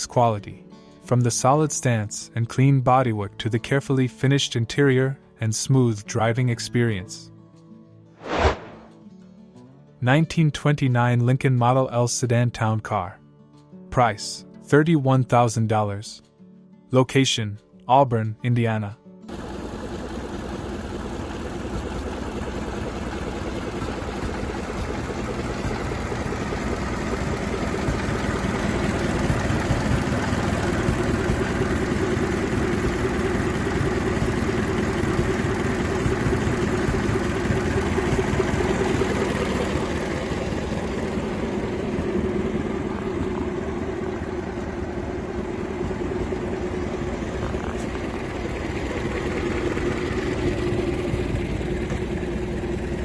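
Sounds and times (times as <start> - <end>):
car engine running: 19.3 - 53.0.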